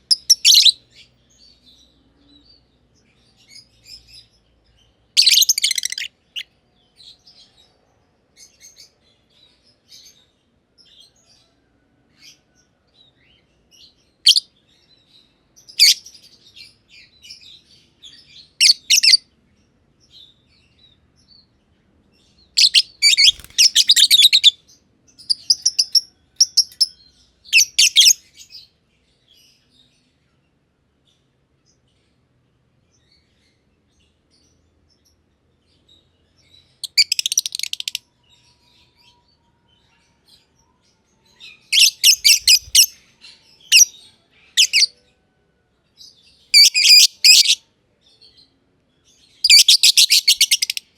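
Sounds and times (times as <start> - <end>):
birds chirping rapidly: 0.0 - 1.9, 4.8 - 6.5, 22.4 - 24.6, 27.5 - 28.2, 41.5 - 44.9, 46.4 - 47.6, 49.3 - 50.9.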